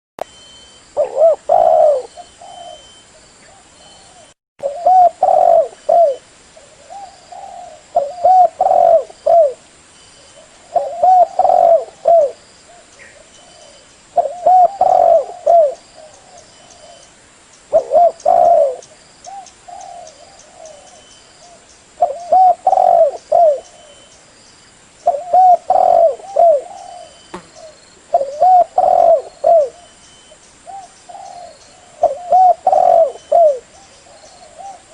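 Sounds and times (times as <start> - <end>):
dove cooing: 1.0 - 9.6, 10.4 - 17.1, 17.7 - 24.0, 25.0 - 30.0, 30.7 - 34.9.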